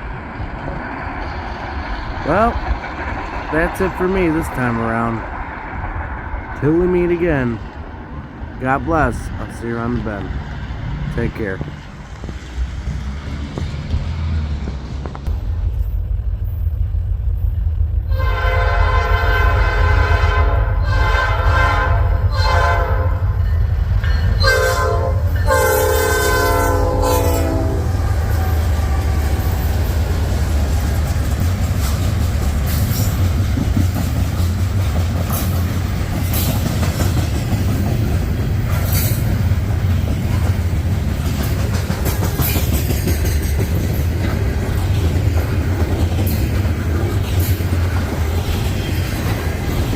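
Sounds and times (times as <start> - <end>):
passing freight train rumble: 0.0 - 49.9
locomotive air horn: 18.1 - 23.2, 24.4 - 29.2.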